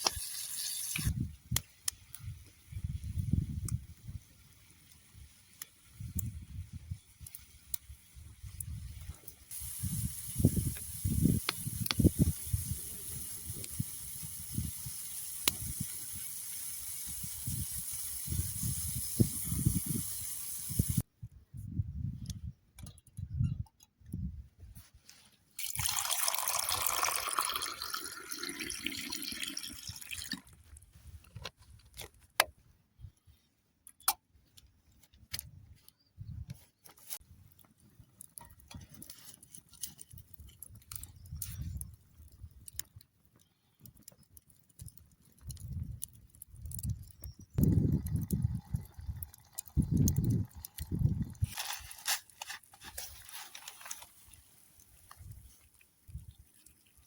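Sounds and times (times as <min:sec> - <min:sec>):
liquid being poured: 0:25.6 - 0:30.7, 0:47.6 - 0:52.2.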